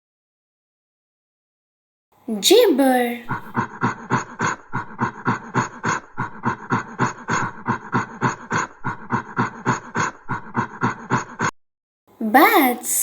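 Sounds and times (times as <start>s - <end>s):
ape gibbering: 3.3s - 11.5s.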